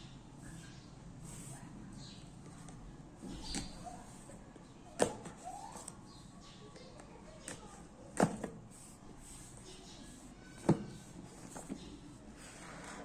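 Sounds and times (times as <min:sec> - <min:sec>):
faint room noise: 0:00.0 - 0:13.0
handling knocks and clicks: 0:07.0 - 0:08.7.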